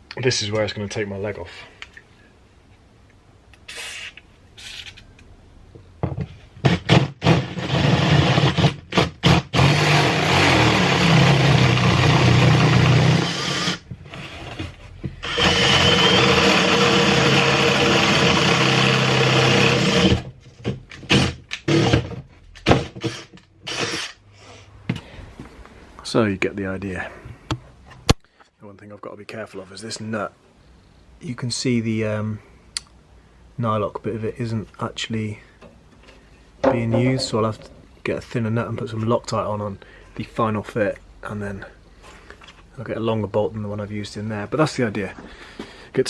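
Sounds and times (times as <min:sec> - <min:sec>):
power drill drilling: 0:06.9 - 0:14.6, 0:15.2 - 0:20.3, 0:21.1 - 0:22.1, 0:22.9 - 0:24.2.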